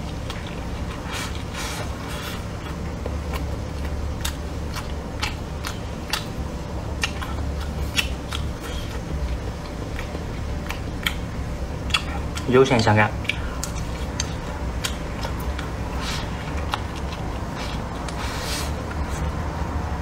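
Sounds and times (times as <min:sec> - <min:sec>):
low hum: 0:00.0 - 0:20.0
wet chewing clicks and smacks: 0:02.5 - 0:18.2.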